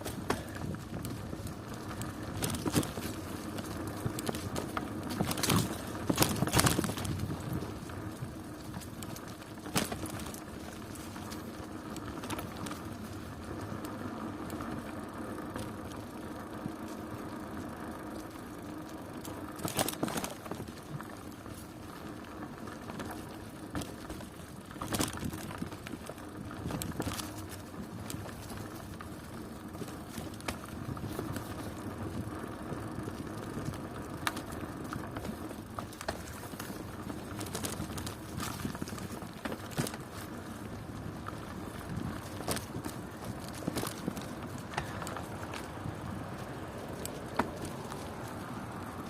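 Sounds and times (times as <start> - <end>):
bicycle knock or rattle: 0.0 - 7.6, 42.0 - 45.7
bicycle tyres and drivetrain: 0.0 - 49.0.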